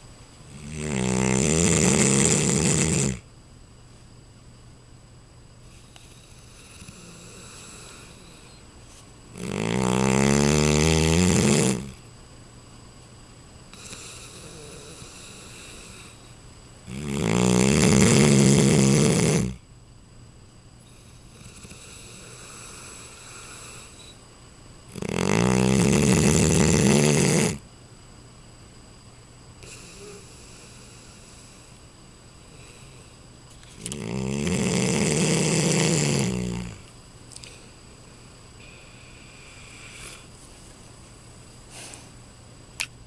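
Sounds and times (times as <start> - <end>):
dog snoring: 0.5 - 3.3, 5.7 - 8.6, 9.3 - 12.0, 13.7 - 19.6, 20.8 - 24.2, 24.9 - 27.6, 29.6 - 31.8, 32.5 - 36.9, 38.6 - 40.3
quiet breath: 5.6 - 9.0, 13.7 - 16.4, 20.8 - 24.2, 29.6 - 33.8, 37.4 - 40.4, 41.7 - 42.2.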